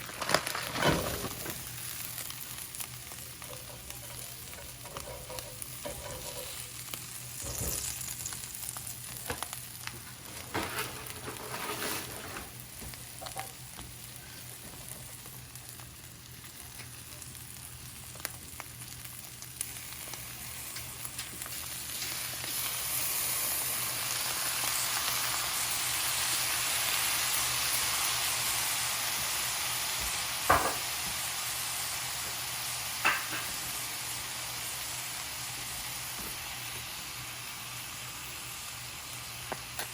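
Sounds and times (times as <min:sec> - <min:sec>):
food frying and sizzling: 0:00.0 - 0:39.9
scraping in a pan: 0:03.4 - 0:06.8, 0:10.3 - 0:12.6.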